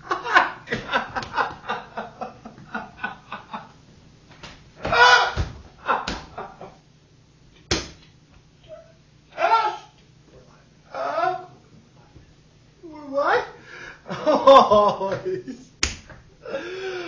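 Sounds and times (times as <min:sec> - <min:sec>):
man giggling: 0:00.0 - 0:03.8, 0:14.1 - 0:15.7
sharp smack: 0:07.7 - 0:08.1, 0:15.8 - 0:16.2.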